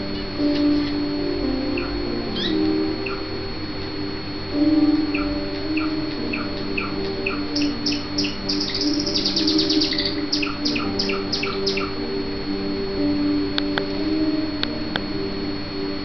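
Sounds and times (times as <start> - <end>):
caged birds chirping: 5.1 - 12.0
faster higher chirps: 5.1 - 12.0.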